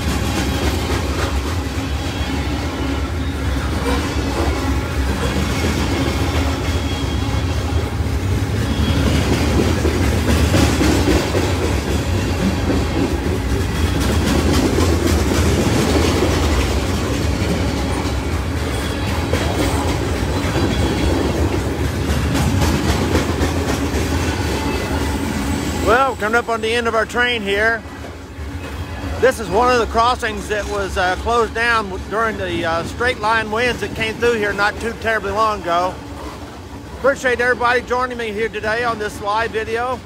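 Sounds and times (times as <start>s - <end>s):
train wheels rumbling on rail: 0.0s - 40.0s
wheels clickety-clack: 0.0s - 40.0s.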